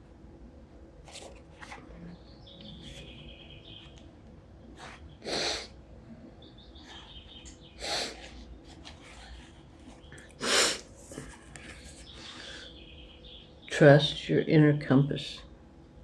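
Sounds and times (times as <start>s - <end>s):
faint bird chirps: 2.0s - 4.0s, 6.3s - 8.3s.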